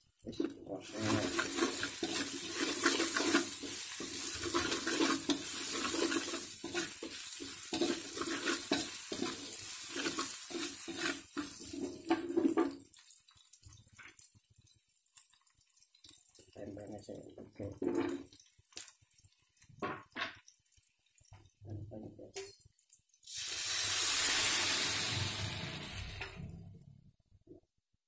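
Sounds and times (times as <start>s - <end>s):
vegetables sizzling in hot oil: 0.4s - 16.6s, 22.8s - 26.7s
metal spatula scraping a pan: 0.9s - 12.8s.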